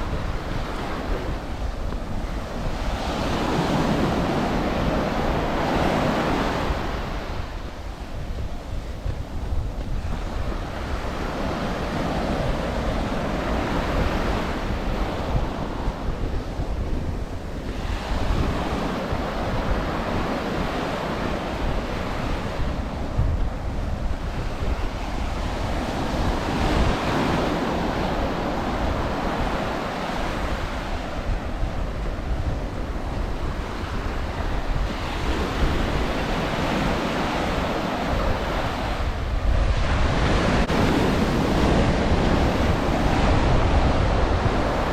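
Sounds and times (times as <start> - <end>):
waves washing up a beach: 0.0 - 44.9
wind rumble on microphone: 0.0 - 44.9.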